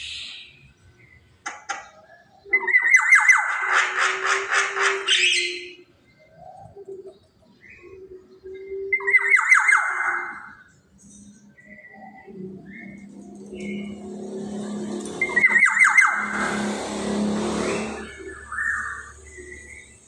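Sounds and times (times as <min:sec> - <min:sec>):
bird giving rasping calls: 0:02.5 - 0:05.8, 0:12.6 - 0:20.0.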